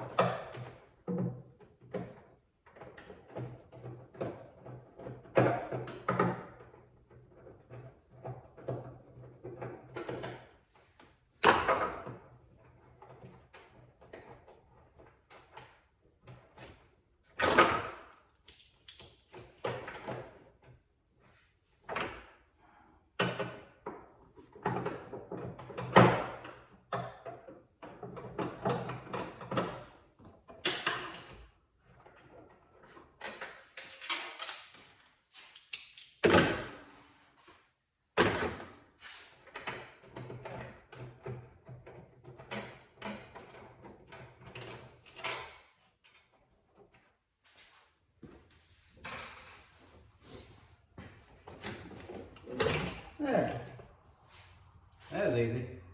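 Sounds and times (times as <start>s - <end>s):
tools and parts knocking: 0.0s - 10.6s, 23.2s - 34.6s.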